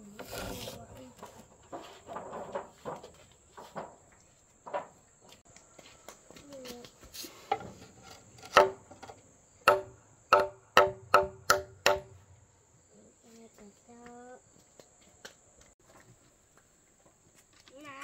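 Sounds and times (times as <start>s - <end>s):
sharp ringing knocks: 8.4s - 8.9s, 9.6s - 12.3s.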